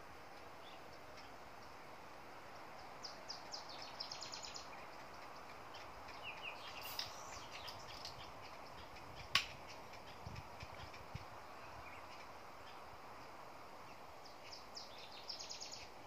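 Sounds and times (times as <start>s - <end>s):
outdoor background hiss: 0.0s - 16.0s
small birds chirping: 0.0s - 16.0s
sharp click: 9.2s - 9.6s.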